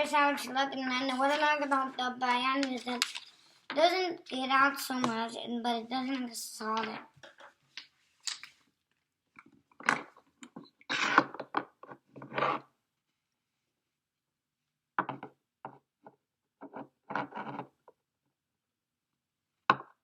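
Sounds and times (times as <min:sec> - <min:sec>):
paper and markers on wooden table: 0:00.0 - 0:08.7, 0:10.0 - 0:12.7, 0:16.6 - 0:17.8.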